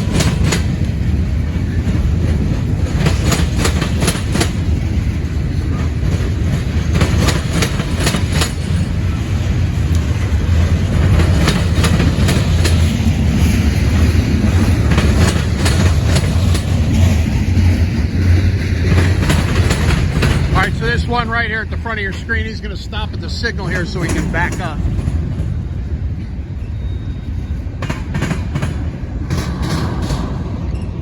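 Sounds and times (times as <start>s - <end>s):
train rumbling past: 0.0s - 31.0s
wheel clicks over rail joints: 2.2s - 4.7s, 6.0s - 9.1s, 9.8s - 13.6s, 14.5s - 17.8s, 18.8s - 21.1s, 23.6s - 25.5s.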